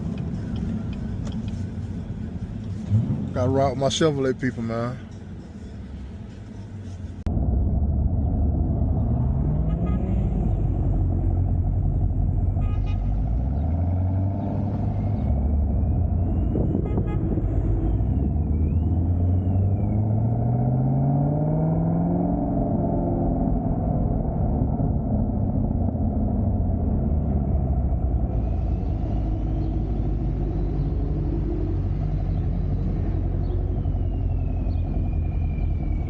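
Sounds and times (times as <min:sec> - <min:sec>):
car engine accelerating hard: 0:07.3 - 0:36.0.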